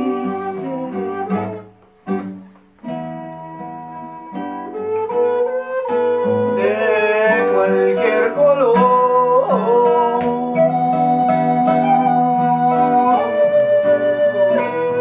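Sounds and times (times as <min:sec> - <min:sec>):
plucked guitar-like notes: 0:00.0 - 0:15.0
sliding wavering lead melody: 0:09.6 - 0:15.0.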